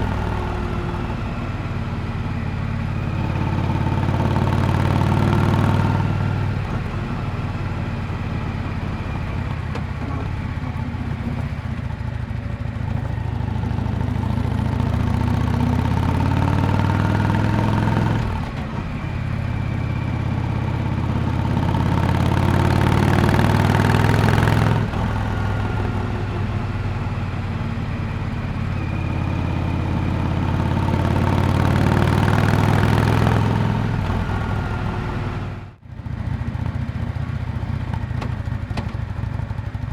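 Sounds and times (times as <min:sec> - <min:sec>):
motorcycle exhaust while riding: 0:00.0 - 0:39.9.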